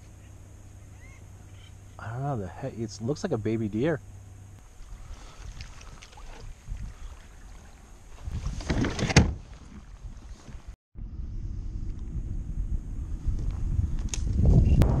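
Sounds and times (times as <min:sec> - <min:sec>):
kayak handling rustle: 0:04.6 - 0:10.8.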